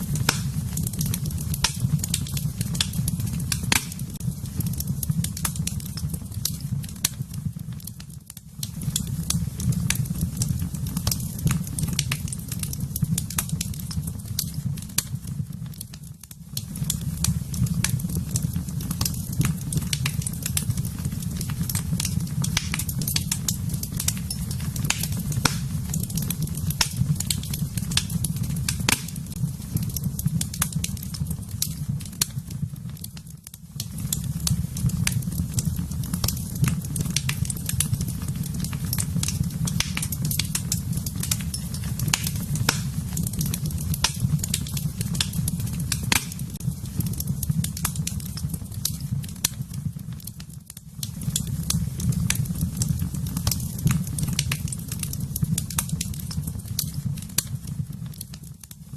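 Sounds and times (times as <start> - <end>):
low rush of flame: 0.0 - 8.0, 8.6 - 32.2, 33.7 - 49.7
wood fire crackling and popping: 0.0 - 58.9.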